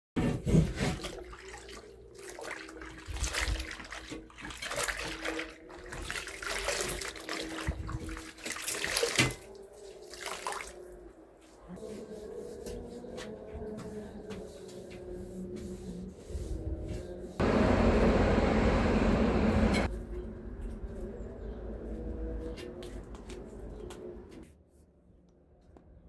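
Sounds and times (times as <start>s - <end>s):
running water splashing: 1.1s - 9.4s.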